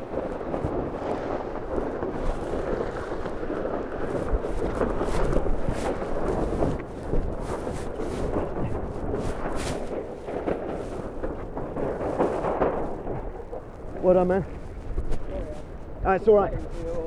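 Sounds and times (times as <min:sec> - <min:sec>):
sail rustles and knocks: 0:00.0 - 0:17.0
wind buffeting microphone: 0:00.0 - 0:17.0.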